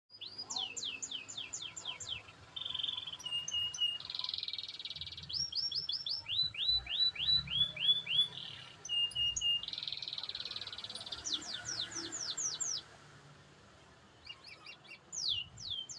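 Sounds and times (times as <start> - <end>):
canary singing: 0.2 - 12.8.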